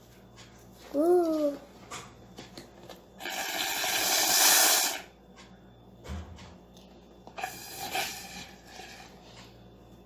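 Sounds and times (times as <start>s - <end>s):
blowing bubbles through a straw: 3.2s - 5.0s, 7.4s - 9.0s.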